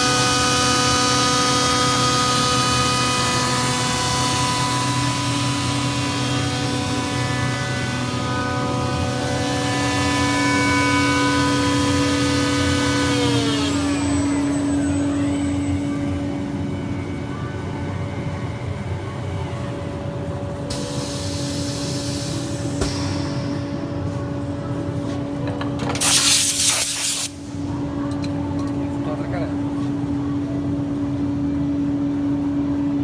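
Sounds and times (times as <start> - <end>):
polishing machine motor whine: 0.0 - 19.3
low steady hum: 0.2 - 26.0.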